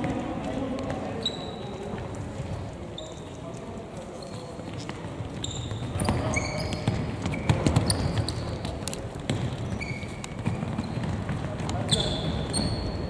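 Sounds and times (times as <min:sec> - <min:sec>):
players' footfalls: 0:03.4 - 0:13.0
short high-pitched squeaks: 0:09.7 - 0:10.2.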